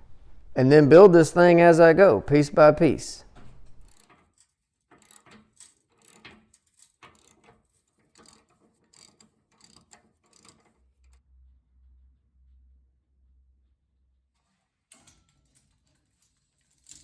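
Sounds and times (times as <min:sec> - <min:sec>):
ratchet wrench clicking: 0:05.0 - 0:07.5, 0:08.1 - 0:11.2.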